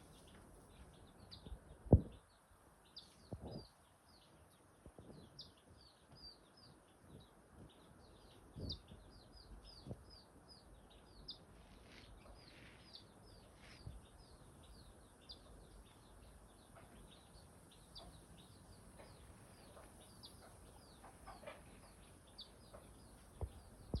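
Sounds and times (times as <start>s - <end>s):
faint bird chirping: 0.0s - 24.0s
soft low thumps: 23.3s - 24.0s.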